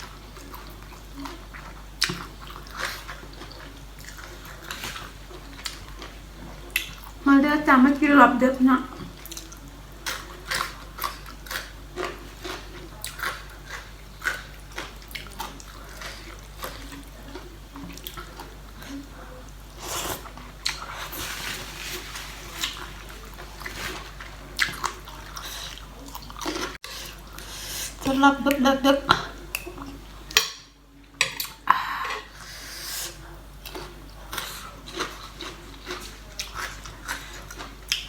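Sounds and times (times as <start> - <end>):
person chewing food: 0.0 - 7.2, 9.0 - 28.1, 31.4 - 38.0.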